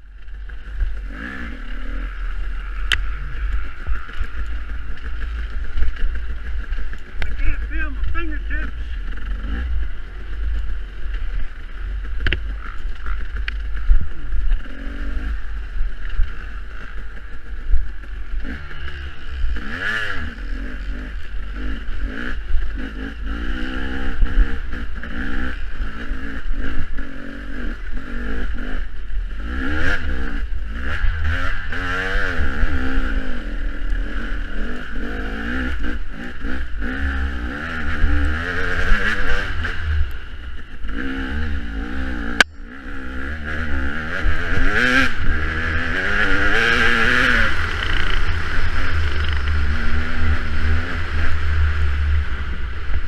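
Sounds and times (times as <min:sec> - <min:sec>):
dirt bike engine revving: 0:00.0 - 0:53.0
wind rumble on microphone: 0:09.0 - 0:42.7.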